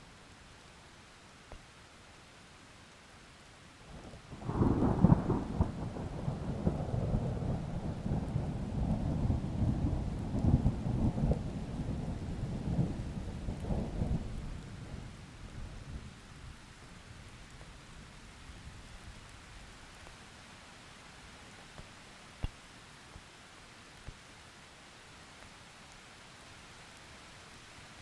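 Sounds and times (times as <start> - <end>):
steady rain: 0.0 - 28.0
thunder rumbling: 4.4 - 16.0.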